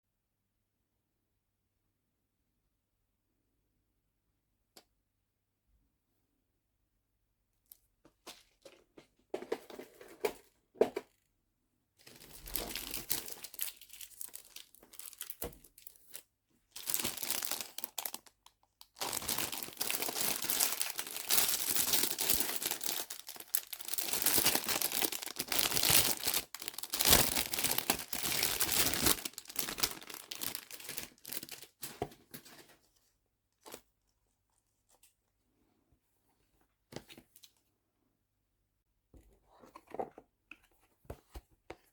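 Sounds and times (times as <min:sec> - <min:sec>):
plastic packaging crinkling: 0:12.1 - 0:16.2, 0:16.8 - 0:32.5.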